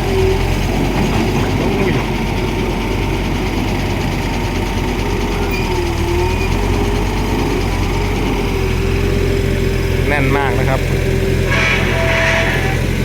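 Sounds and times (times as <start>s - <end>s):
diesel engine running under load: 0.0s - 13.0s
hydraulic whine: 10.2s - 13.0s.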